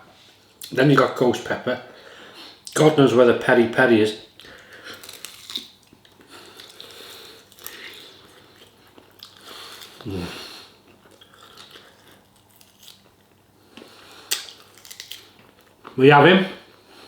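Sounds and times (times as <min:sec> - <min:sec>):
man chewing food: 0:04.4 - 0:16.0
man humming: 0:10.0 - 0:10.5.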